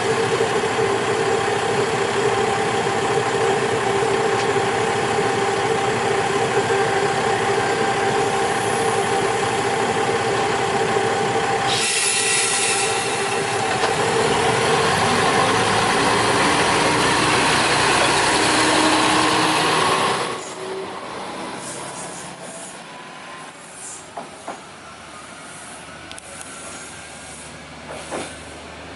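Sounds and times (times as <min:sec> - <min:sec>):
diesel railcar engine: 0:00.0 - 0:28.9
loud air hiss: 0:11.7 - 0:13.7.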